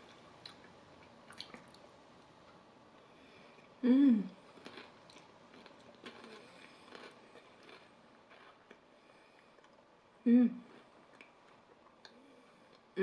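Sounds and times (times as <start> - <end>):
person chewing: 0.0 - 1.8, 4.4 - 9.8
closed-mouth hum: 0.0 - 5.5.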